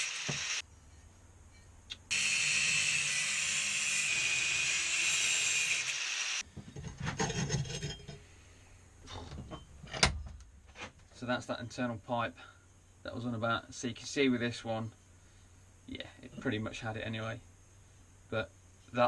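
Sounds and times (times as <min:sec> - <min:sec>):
power tool cutting metal: 0:00.0 - 0:00.6, 0:02.1 - 0:06.4.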